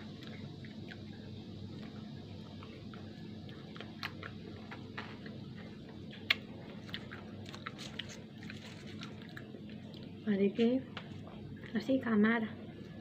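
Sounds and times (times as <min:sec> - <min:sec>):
steady low hum: 0:00.0 - 0:13.0
mouth clicks and lip smacks: 0:03.5 - 0:05.4, 0:06.1 - 0:08.2.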